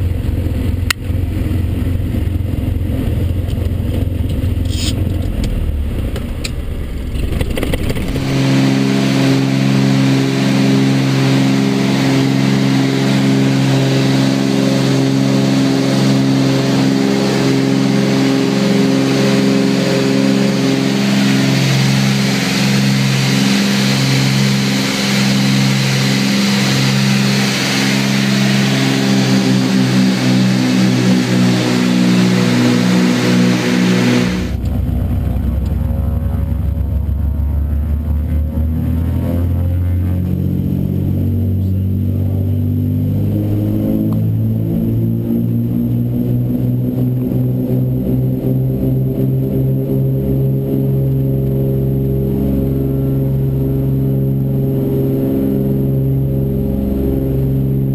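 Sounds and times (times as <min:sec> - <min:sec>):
propeller plane engines droning: 0:00.0 - 0:57.9.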